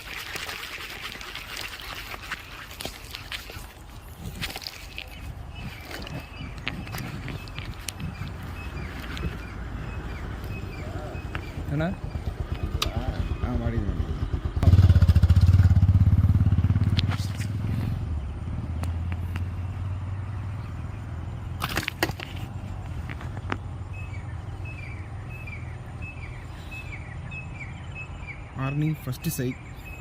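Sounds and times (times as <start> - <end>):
bird chirps: 3.1 - 15.1, 22.4 - 30.0
low engine rumble: 3.6 - 30.0.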